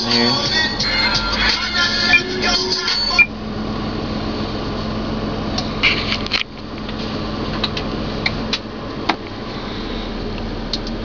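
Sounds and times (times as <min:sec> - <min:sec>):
air hissing in car cabin: 0:05.5 - 0:06.3, 0:06.9 - 0:10.9.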